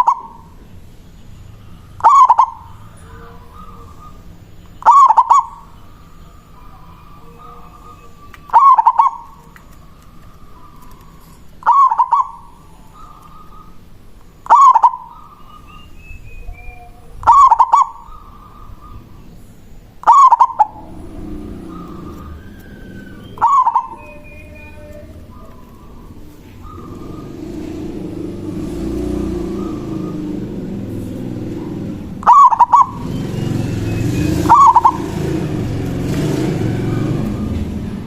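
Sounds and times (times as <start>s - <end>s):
dove cooing: 0.0s - 0.6s, 1.7s - 19.4s, 20.0s - 38.0s.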